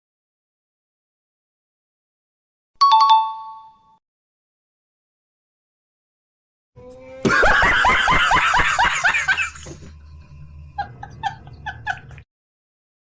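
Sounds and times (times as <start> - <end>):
person laughing: 7.2 - 12.2.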